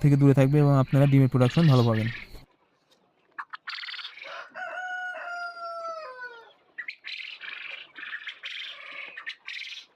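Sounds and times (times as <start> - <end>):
rooster crowing: 4.2 - 6.6.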